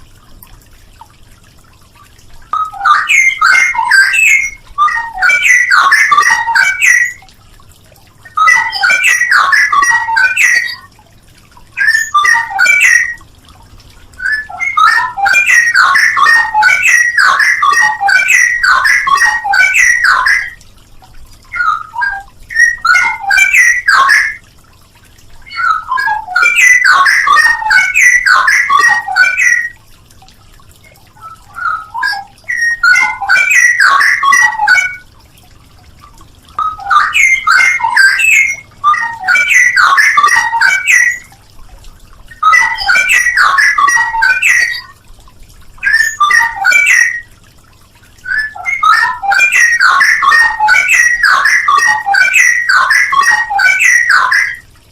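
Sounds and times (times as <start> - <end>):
bird singing warbling phrases: 2.5 - 7.3, 8.2 - 11.0, 11.7 - 13.3, 14.1 - 20.6, 21.5 - 24.5, 25.3 - 29.8, 30.8 - 35.1, 36.5 - 41.4, 42.2 - 45.0, 45.8 - 47.4, 48.1 - 54.7.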